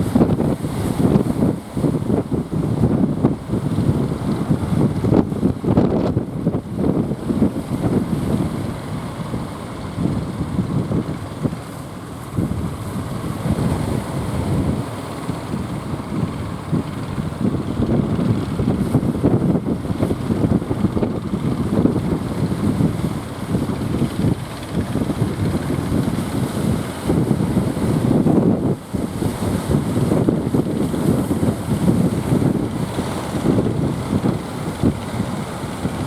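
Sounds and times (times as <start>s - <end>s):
gusting wind buffeting microphone: 0.0s - 36.0s.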